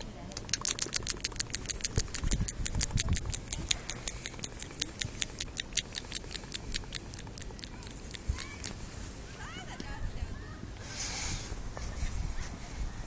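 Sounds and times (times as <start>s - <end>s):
rapid high-pitched clicking: 0.3s - 8.8s.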